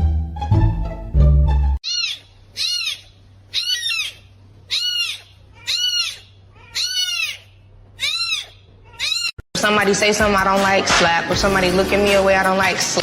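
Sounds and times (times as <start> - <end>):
animal high calls: 1.8 - 9.4.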